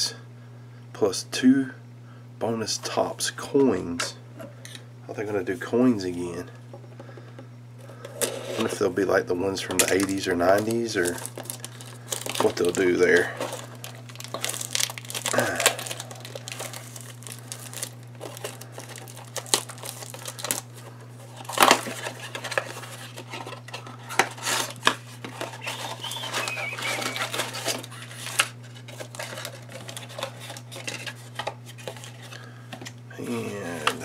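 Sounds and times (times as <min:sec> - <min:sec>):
plastic wrapping crinkling and tearing: 0:09.6 - 0:32.5.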